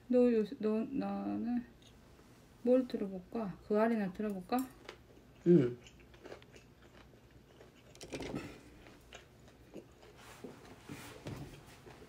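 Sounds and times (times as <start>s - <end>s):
person chewing food: 4.7s - 10.8s.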